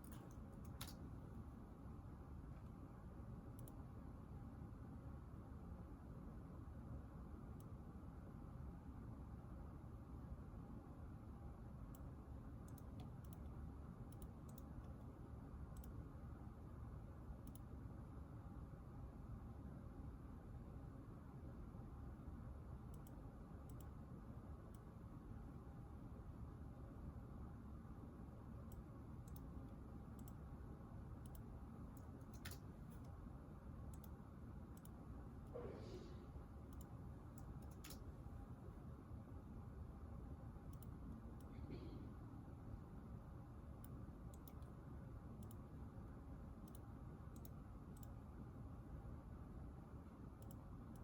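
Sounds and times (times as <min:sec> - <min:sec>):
light clicks of keys: 0:00.0 - 0:01.1, 0:31.2 - 0:33.2, 0:36.7 - 0:38.1
low room hum: 0:00.0 - 0:51.0.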